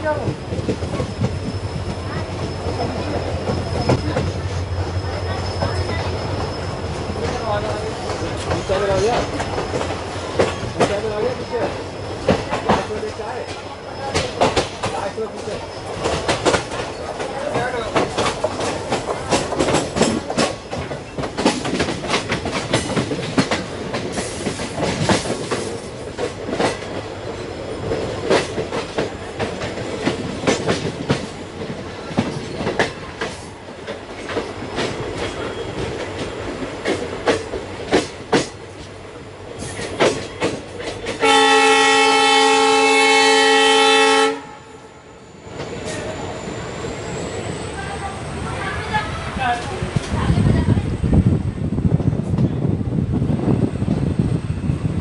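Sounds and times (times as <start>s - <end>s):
train wheels clattering over rail joints: 0.1s - 41.7s
train horn: 41.1s - 45.0s.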